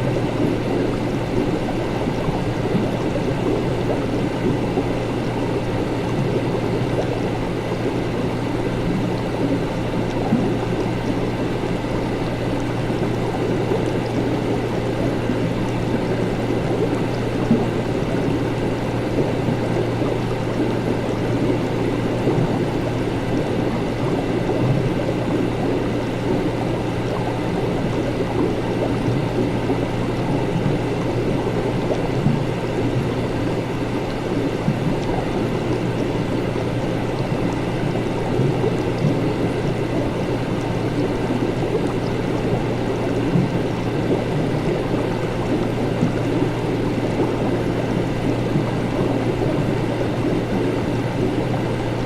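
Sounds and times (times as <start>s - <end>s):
low electrical hum: 0.0s - 52.0s
watery bubbling: 0.0s - 52.0s.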